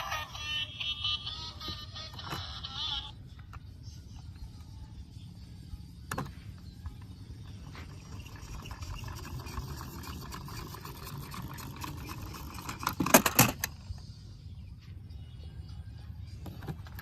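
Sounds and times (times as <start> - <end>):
toy vehicles rolling: 0.0 - 3.7, 6.2 - 14.0.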